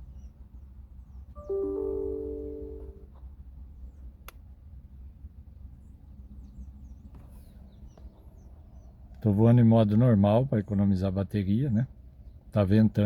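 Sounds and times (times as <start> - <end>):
faint high chirps: 1.4 - 3.1
phone electronic chime: 1.4 - 3.1.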